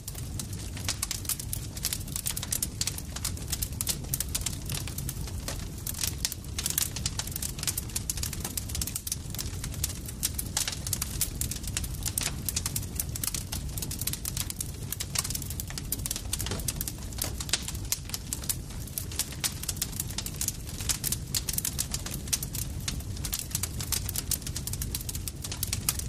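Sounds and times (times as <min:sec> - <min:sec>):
campfire crackling and popping: 0:00.0 - 0:26.0
low rumble of fire: 0:00.0 - 0:26.0.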